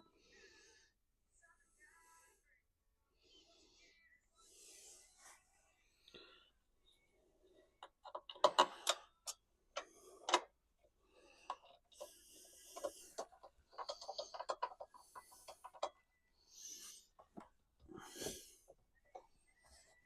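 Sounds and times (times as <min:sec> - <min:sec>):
tools and plastic parts clicking: 0:07.8 - 0:10.5, 0:11.4 - 0:16.0.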